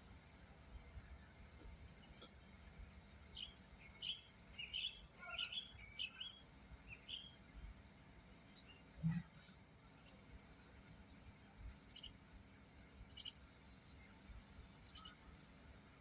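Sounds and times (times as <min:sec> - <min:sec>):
bird chirping: 0:03.2 - 0:07.6, 0:08.4 - 0:10.2, 0:11.8 - 0:12.2, 0:12.9 - 0:14.2, 0:14.8 - 0:15.3.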